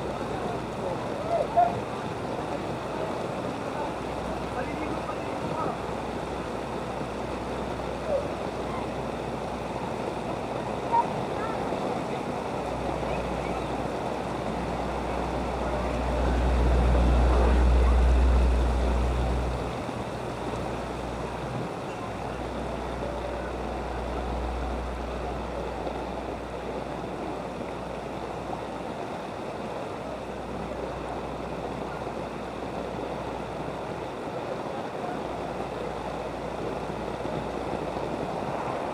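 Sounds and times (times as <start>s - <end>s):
rushing floodwater: 0.0s - 38.9s
low rumble: 14.6s - 21.7s.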